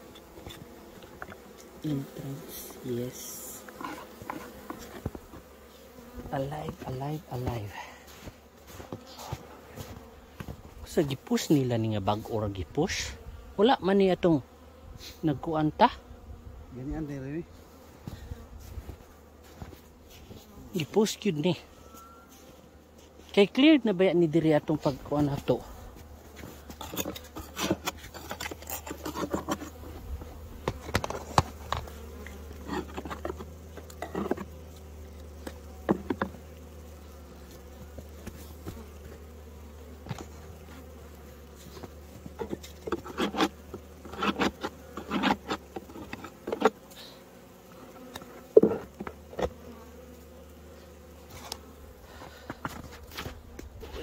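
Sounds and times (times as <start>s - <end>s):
honeybees buzzing: 0.0s - 54.0s
knocks and scrapes: 26.3s - 31.9s, 32.6s - 34.6s, 41.6s - 46.8s, 52.2s - 54.0s.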